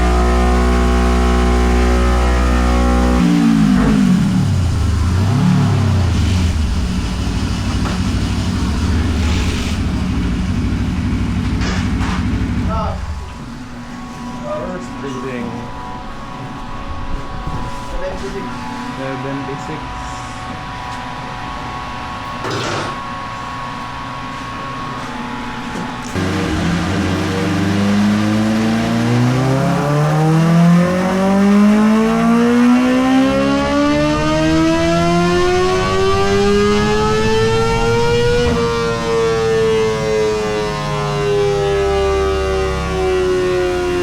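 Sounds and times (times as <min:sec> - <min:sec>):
motorcycle engine revs falling: 0:00.0 - 0:13.4, 0:26.1 - 0:40.7
steady mechanical hum: 0:00.0 - 0:41.6
faint whine: 0:03.8 - 0:29.8
motorcycle engine idling: 0:09.8 - 0:12.7, 0:26.2 - 0:29.3.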